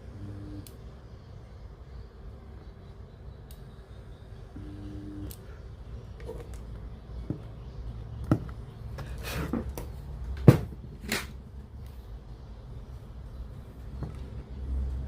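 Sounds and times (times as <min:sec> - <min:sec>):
low steady hum: 0:00.0 - 0:15.0
sharp knocks and clicks: 0:07.2 - 0:08.8.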